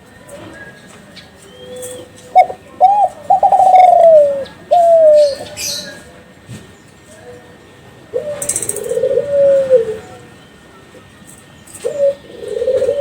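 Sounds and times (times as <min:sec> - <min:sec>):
dove cooing: 0:01.6 - 0:06.1, 0:08.1 - 0:10.3, 0:11.7 - 0:13.0.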